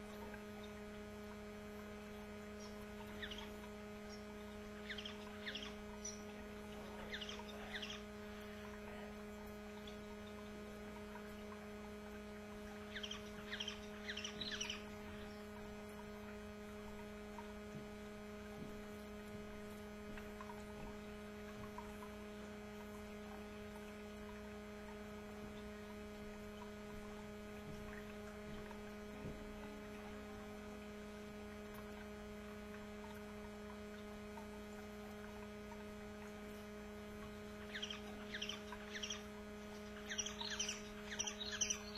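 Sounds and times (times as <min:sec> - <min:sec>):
low electrical hum: 0:00.0 - 0:41.9
canary chirping: 0:37.7 - 0:39.2, 0:40.0 - 0:41.9.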